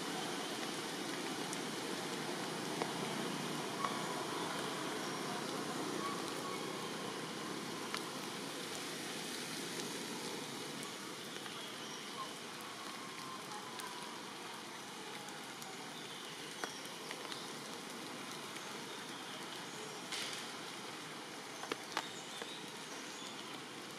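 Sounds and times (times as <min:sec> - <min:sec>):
rain falling: 0:00.0 - 0:23.9
sharp ticks of raindrops: 0:00.0 - 0:23.9.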